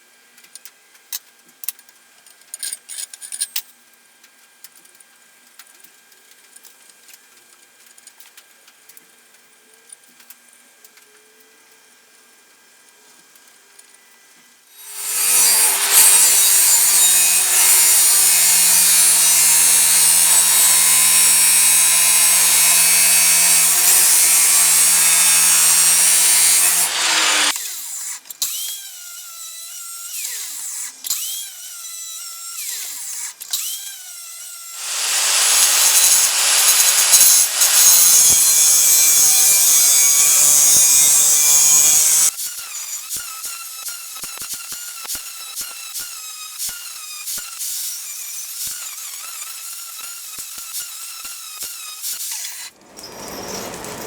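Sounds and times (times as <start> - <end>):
power tool grinding metal: 14.8 - 54.0.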